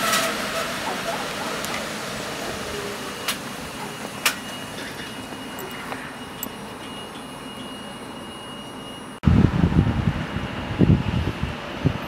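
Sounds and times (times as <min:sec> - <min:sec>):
train rushing noise: 0:00.0 - 0:12.0
faint high steady tone: 0:02.7 - 0:09.2.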